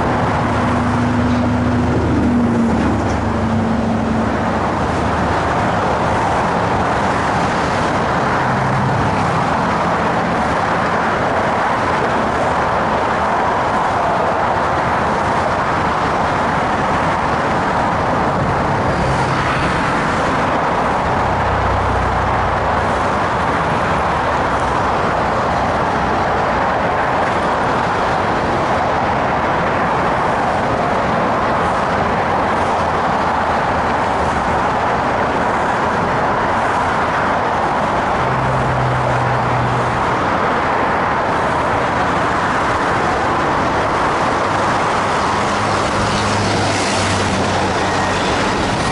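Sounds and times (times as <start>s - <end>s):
cars passing: 0.0s - 48.9s
heavy vehicles rumbling: 0.0s - 48.9s.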